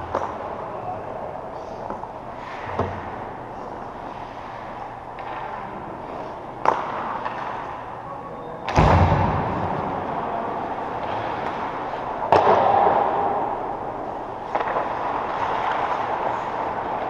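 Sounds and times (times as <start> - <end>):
background hum: 0.0 - 17.0
sharp knocks echoing: 8.7 - 10.0, 12.2 - 13.6.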